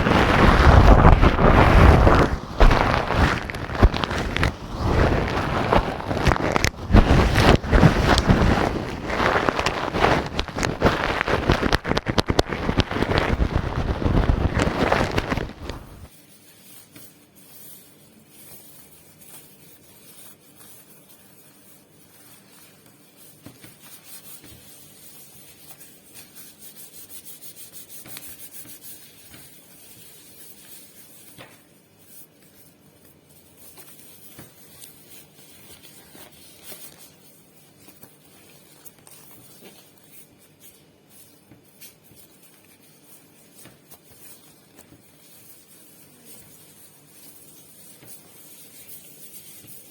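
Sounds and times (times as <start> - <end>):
gloved fingers rubbing microphone: 0.0 - 16.1.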